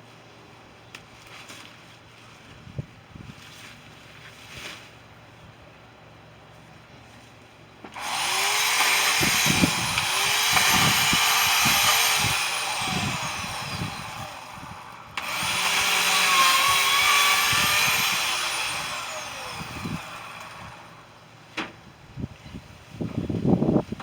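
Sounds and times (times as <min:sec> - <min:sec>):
power tool motor spinning: 0:08.0 - 0:21.1.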